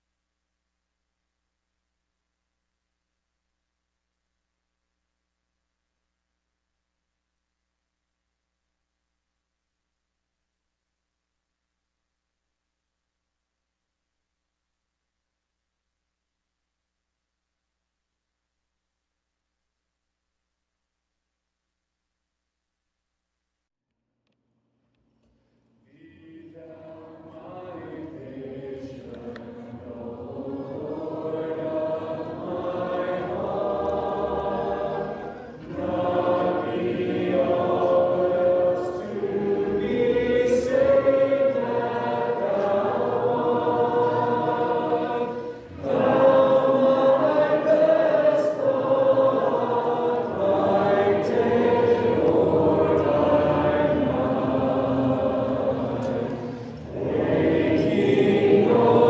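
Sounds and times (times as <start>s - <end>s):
congregation singing a hymn: 25.8s - 59.0s.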